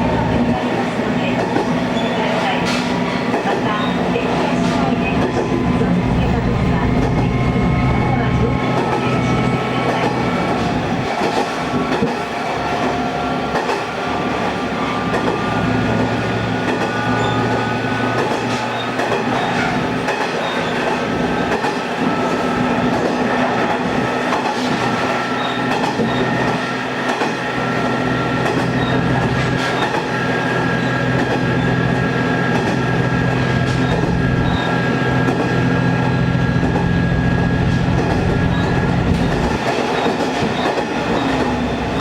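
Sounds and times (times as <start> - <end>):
high wheel squeal: 4.8 - 10.5, 16.9 - 17.8, 18.5 - 20.9, 25.2 - 26.5, 33.7 - 35.0, 35.9 - 42.0
diesel engine drone: 5.1 - 9.5.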